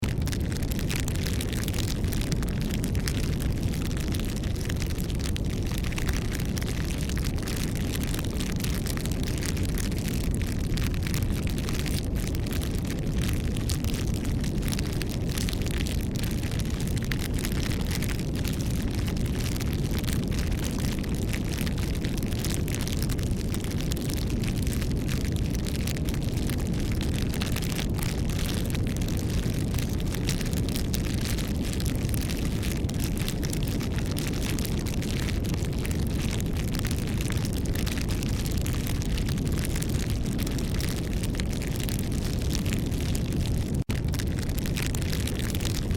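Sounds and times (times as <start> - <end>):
fire crackling and popping: 0.0 - 45.9
wood fire rumble: 0.0 - 45.9.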